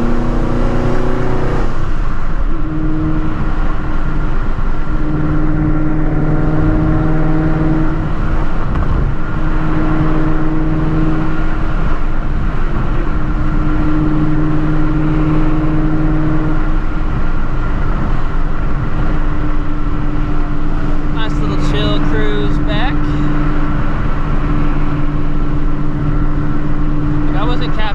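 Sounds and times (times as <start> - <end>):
car engine drone: 0.0 - 27.9
road noise: 0.0 - 27.9.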